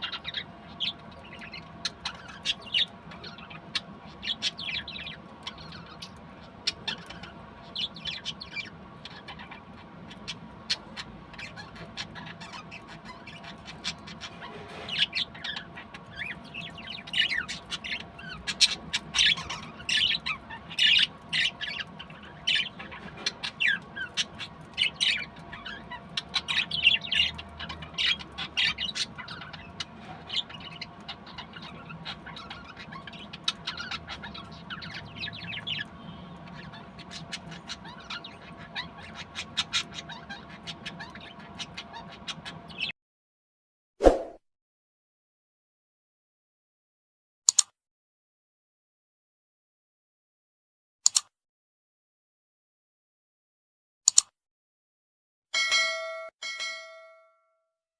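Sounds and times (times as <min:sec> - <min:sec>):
budgerigars chirping and chattering: 0:00.0 - 0:42.9.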